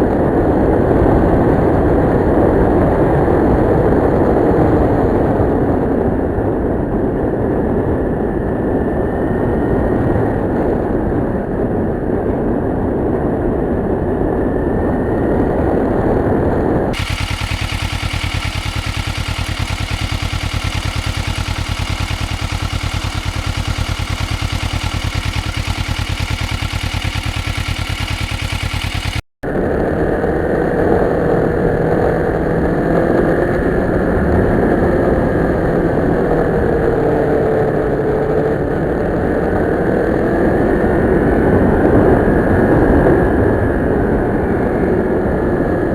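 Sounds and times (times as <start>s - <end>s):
motorcycle engine running: 17.0s - 29.2s.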